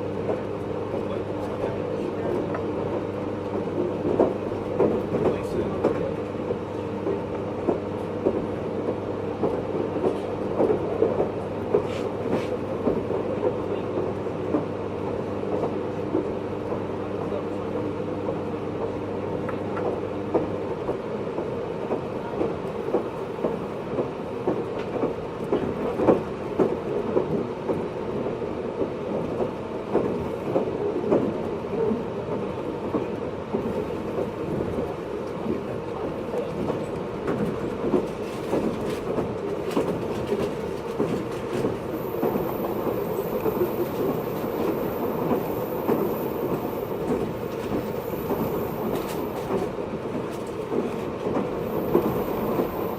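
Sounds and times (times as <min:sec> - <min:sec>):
train running rumble: 0:00.0 - 0:52.9
steady hum: 0:41.8 - 0:49.6, 0:51.5 - 0:52.9.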